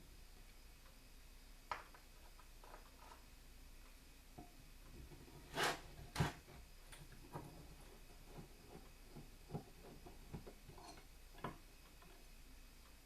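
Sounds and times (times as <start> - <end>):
screwdriver scraping metal: 5.2 - 11.1.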